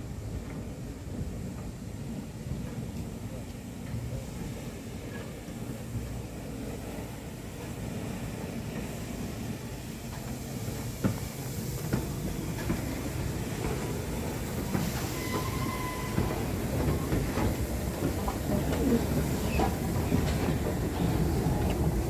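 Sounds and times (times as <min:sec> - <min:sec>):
train rumbling on track: 0:00.0 - 0:22.0
brief high squeal: 0:15.0 - 0:16.2.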